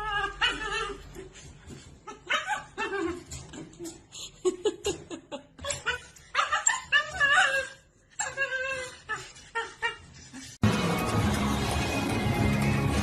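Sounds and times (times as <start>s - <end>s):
dog whining: 0.0s - 4.0s, 5.6s - 10.6s
music: 10.6s - 13.0s.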